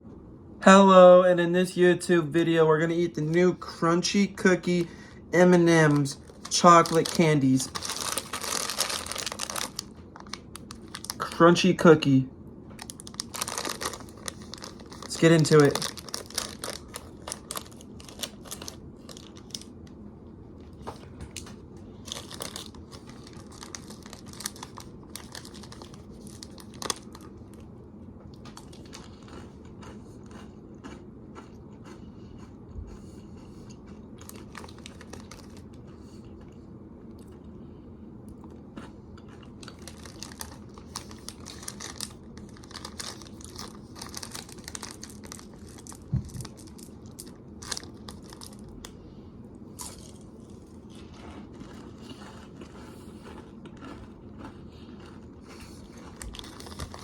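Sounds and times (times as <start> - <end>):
candy bag crinkling: 2.8 - 12.2, 12.8 - 19.8, 21.0 - 27.6, 34.2 - 35.8, 39.2 - 48.9, 49.8 - 57.0
crunchy chewing: 5.7 - 11.3, 12.8 - 19.8, 20.6 - 27.7, 28.3 - 37.6, 38.3 - 49.0, 49.7 - 57.0.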